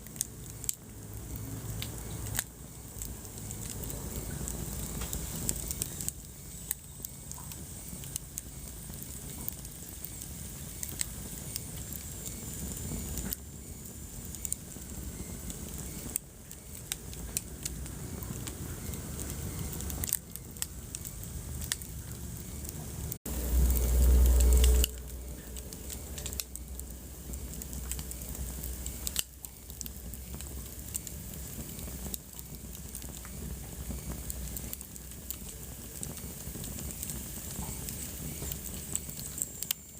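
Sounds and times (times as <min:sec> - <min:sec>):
wood fire crackling: 0:00.0 - 0:39.9
loud low rumble: 0:17.2 - 0:29.0.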